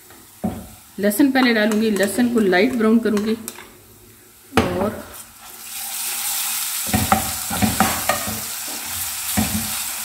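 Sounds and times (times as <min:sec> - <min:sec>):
paste sizzling in hot oil: 0:05.0 - 0:10.0
spoon stirring and scraping pot: 0:06.8 - 0:10.0.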